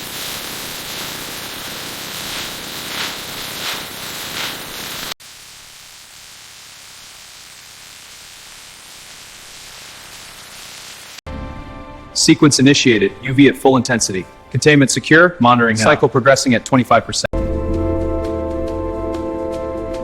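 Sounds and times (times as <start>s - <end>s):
static-like hiss: 0.0s - 11.2s.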